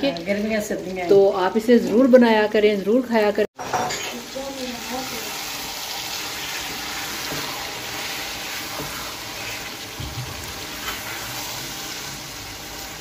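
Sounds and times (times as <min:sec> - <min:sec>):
curry sizzling in a wok: 0:00.0 - 0:13.0
spatula stirring: 0:05.9 - 0:12.9.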